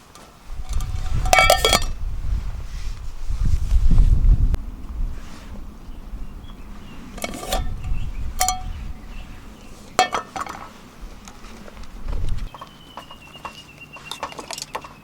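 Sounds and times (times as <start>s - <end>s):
metal cookware clinking: 1.0s - 1.9s, 7.2s - 7.8s, 8.4s - 8.8s, 10.0s - 10.6s.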